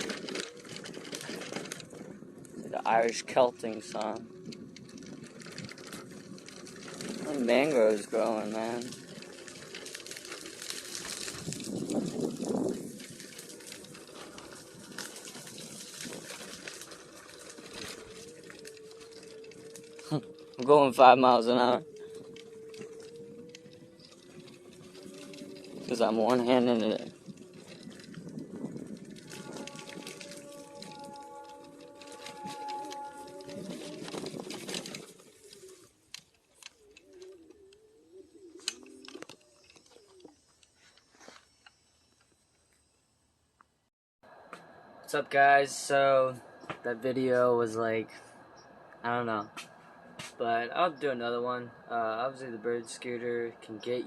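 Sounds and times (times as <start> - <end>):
bird cooing: 0.0 - 2.6, 3.6 - 41.3, 46.4 - 54.0
scooter tyres hissing on dirt: 0.0 - 37.4, 38.0 - 42.5
small clicks and rattles: 0.0 - 37.9, 38.6 - 42.9
electric motor whine: 3.3 - 36.0.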